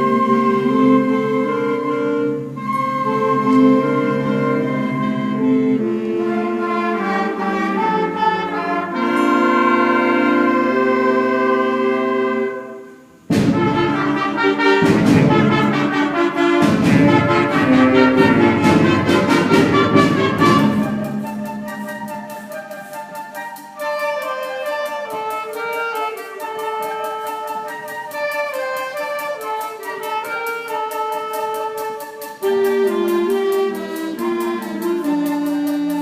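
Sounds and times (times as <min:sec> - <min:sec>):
concert band playing: 0:00.0 - 0:36.0
sharp percussive strikes: 0:13.2 - 0:32.8.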